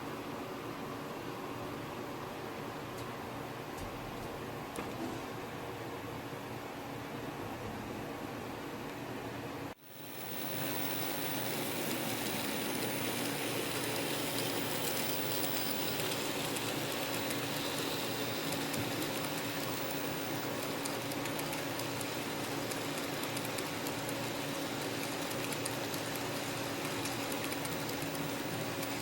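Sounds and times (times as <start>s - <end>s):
model train motor hum: 9.8s - 29.0s
wheels clicking on track: 10.3s - 29.0s.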